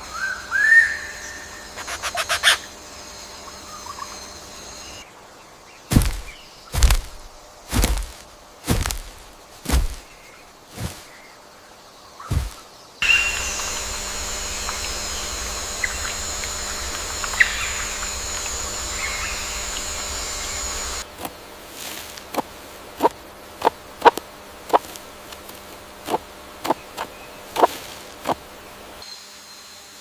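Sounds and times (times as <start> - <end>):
bird chirps: 12.2 - 21.0
high-pitched insect buzz: 12.3 - 21.0.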